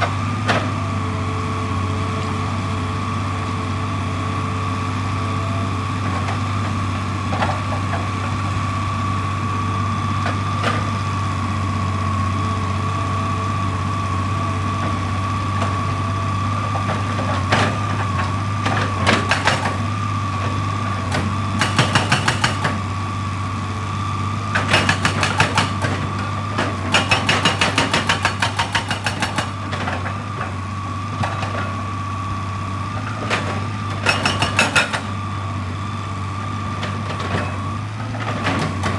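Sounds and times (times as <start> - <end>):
low engine hum: 0.0 - 27.0.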